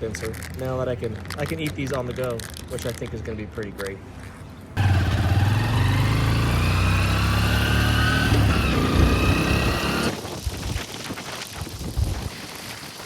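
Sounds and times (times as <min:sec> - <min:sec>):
motorcycle engine running: 0:04.8 - 0:10.2.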